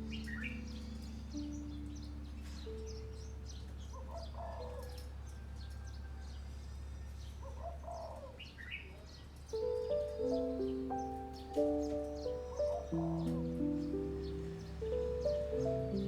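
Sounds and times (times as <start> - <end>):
soft sustained music notes: 0.0 - 4.0, 9.5 - 16.0
birds chirping: 0.0 - 4.6, 8.4 - 16.0.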